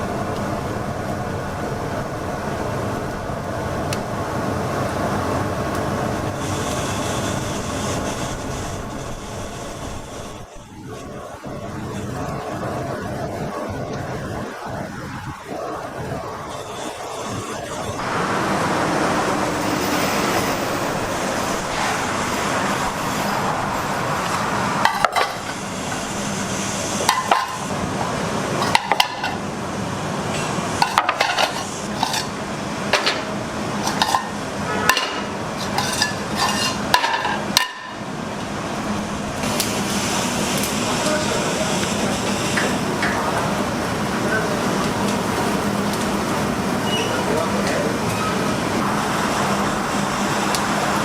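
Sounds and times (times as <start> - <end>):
rushing background noise: 0.0 - 51.0
utensils and dishes clinking: 24.3 - 26.2, 27.0 - 27.8, 28.6 - 29.4, 30.3 - 38.0.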